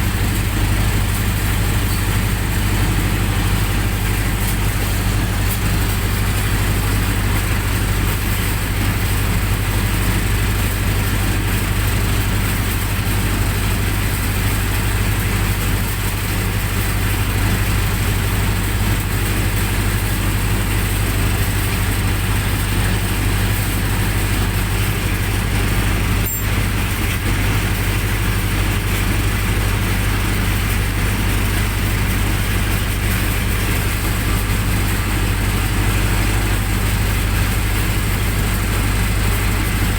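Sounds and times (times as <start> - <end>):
generator engine running: 0.0 - 39.9.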